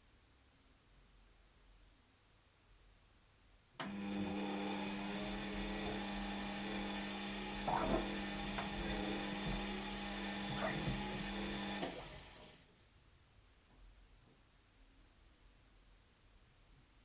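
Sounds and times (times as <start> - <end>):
washing machine humming: 3.8 - 12.6.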